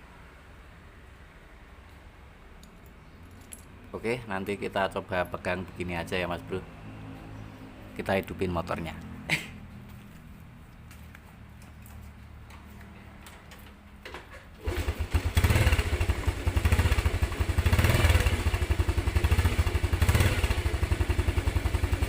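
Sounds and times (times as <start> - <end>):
motorcycle engine starting and revving: 13.2 - 22.0.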